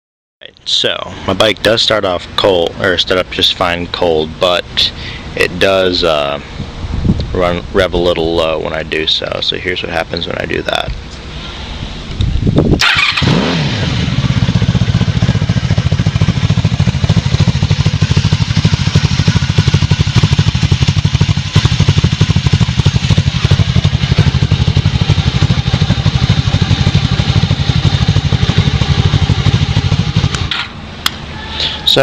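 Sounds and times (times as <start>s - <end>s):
motorcycle engine starting and idling: 12.0s - 32.0s.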